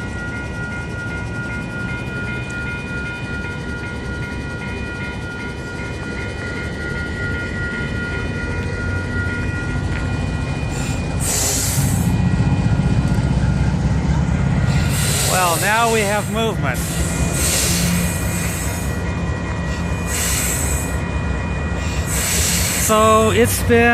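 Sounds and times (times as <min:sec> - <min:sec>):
crossing warning bell ringing: 0:00.0 - 0:23.9
diesel locomotive idling: 0:00.0 - 0:23.9
air hiss: 0:14.7 - 0:18.9, 0:19.7 - 0:21.0, 0:21.8 - 0:23.0.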